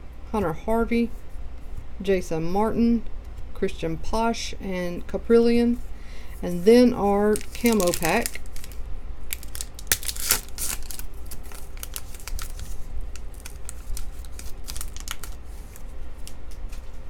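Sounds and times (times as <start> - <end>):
foil wrapper crinkling and tearing: 7.1 - 17.0
cards being handled: 7.3 - 17.0.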